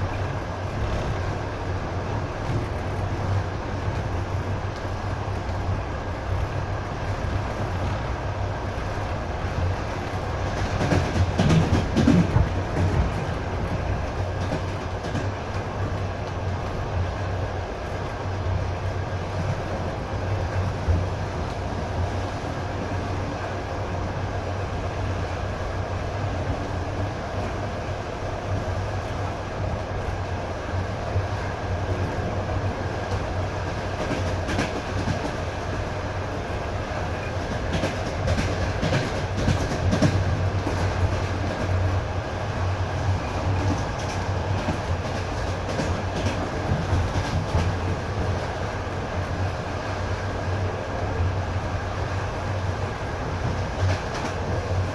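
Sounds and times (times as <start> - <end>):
train rumbling on track: 0.0 - 54.9.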